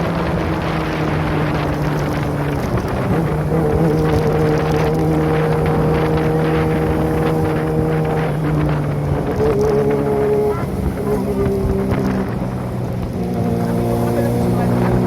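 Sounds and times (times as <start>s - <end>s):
motorcycle engine running: 0.0s - 15.0s
wind on microphone: 0.0s - 15.0s.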